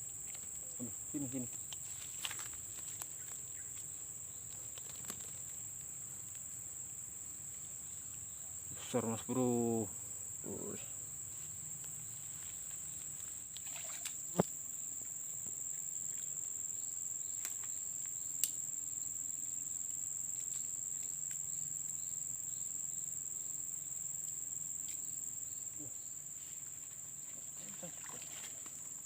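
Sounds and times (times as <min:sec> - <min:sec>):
insect chorus trilling: 0:00.0 - 0:29.0.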